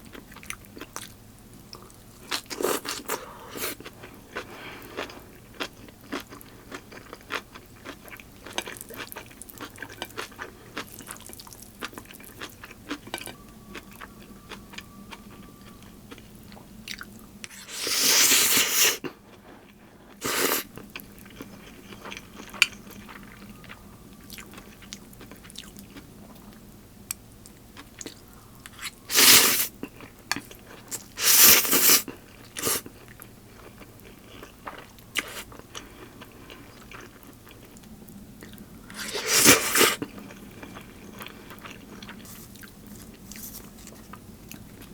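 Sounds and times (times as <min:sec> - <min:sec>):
noisy eating bursts: 0:00.1 - 0:26.6, 0:27.4 - 0:44.9.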